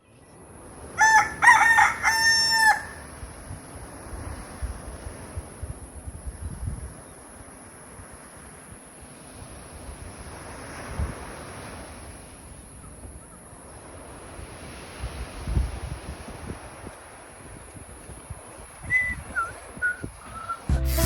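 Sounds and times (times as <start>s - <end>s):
wind buffeting microphone: 3.0s - 7.4s, 14.3s - 20.7s
sea waves washing on shore: 13.7s - 21.0s.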